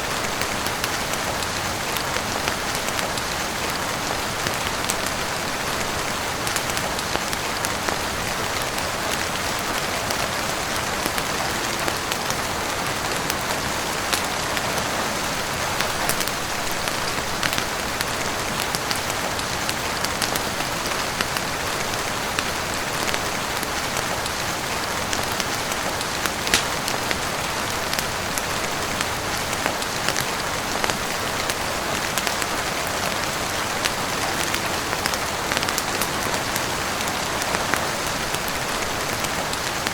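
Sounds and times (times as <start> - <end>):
heavy rain on roof and windows: 0.0 - 39.9
sharp ticks and pops: 26.5 - 27.0.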